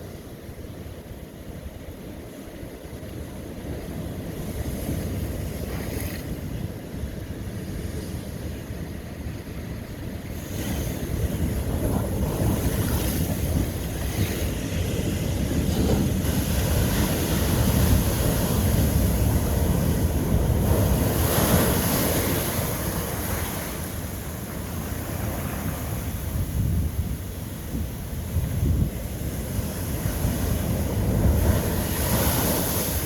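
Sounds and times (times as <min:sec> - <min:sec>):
ocean waves crashing on rock: 0:10.2 - 0:33.0.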